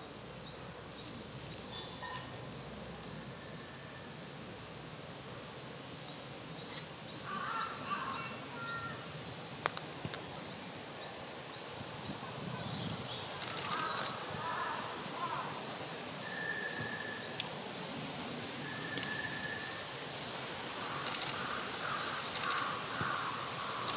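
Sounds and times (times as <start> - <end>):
birds chattering calls: 12.7 - 15.4, 20.8 - 23.9.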